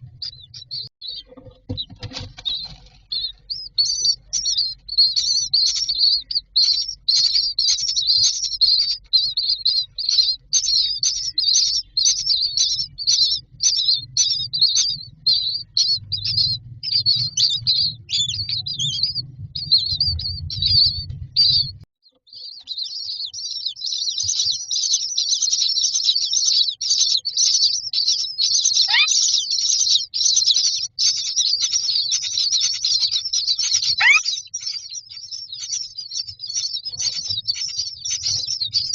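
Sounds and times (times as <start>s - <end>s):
nestlings chirping: 0.0s - 38.9s
falling bird call: 28.8s - 29.4s, 33.8s - 34.4s.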